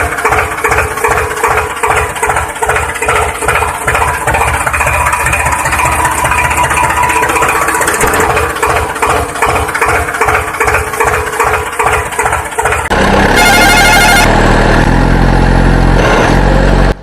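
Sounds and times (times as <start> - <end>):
tractor engine chugging: 0.0 - 17.0.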